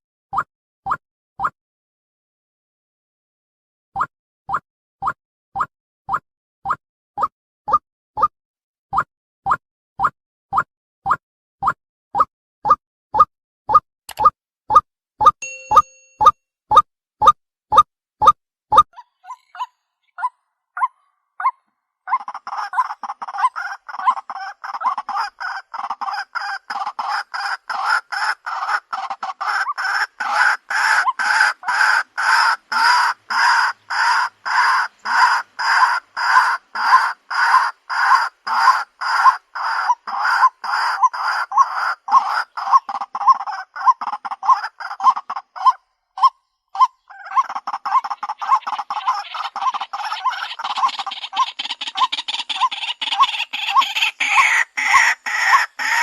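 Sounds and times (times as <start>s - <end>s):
waterhen harsh calls: 19.0s - 56.0s.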